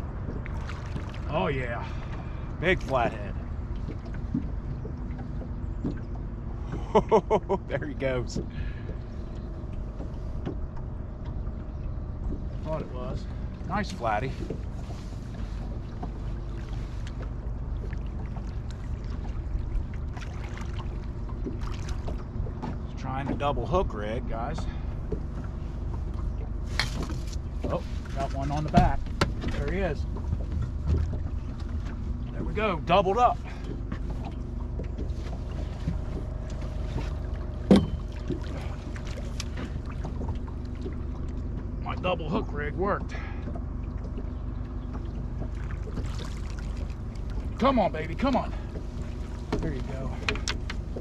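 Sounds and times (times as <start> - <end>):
boat engine rumble: 0.0 - 51.0
sharp knock against boat: 28.6 - 29.6, 37.0 - 38.5
light clicks and taps: 48.2 - 51.0.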